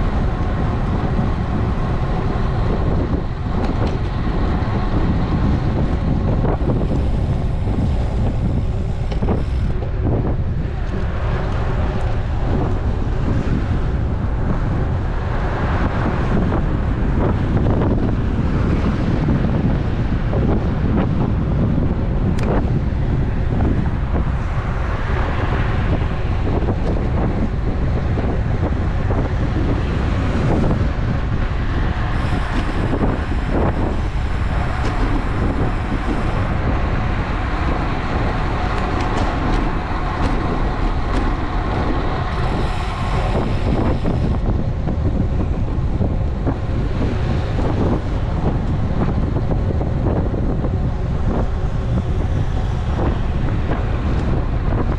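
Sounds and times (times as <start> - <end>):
road noise: 0.0 - 54.9
wind buffeting microphone: 0.0 - 54.9.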